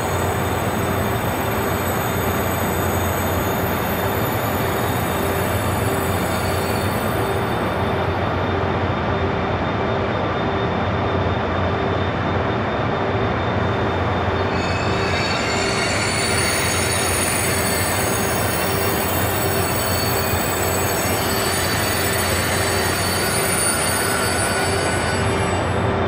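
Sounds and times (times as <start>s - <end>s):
train wheels rumbling: 12.8s - 26.0s
high-pitched squealing tones: 14.2s - 26.0s.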